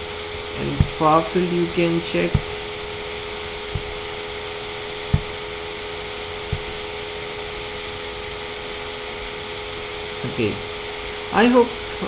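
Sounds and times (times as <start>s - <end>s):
electrical hum and hiss: 0.0s - 12.0s
soft low thumps: 2.3s - 2.8s, 3.5s - 4.2s, 4.9s - 5.6s, 6.4s - 6.9s.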